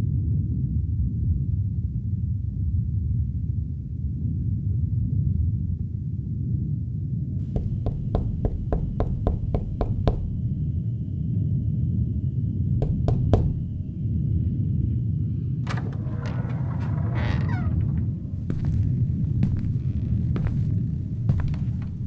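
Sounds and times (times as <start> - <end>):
steady low rumble: 0.2 - 22.0
knocking on a door: 7.4 - 10.4, 12.8 - 13.9.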